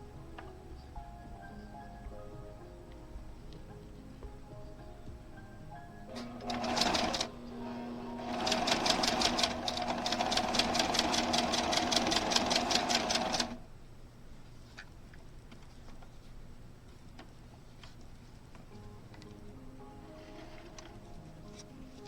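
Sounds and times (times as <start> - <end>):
sewing machine stitching: 6.2 - 13.6.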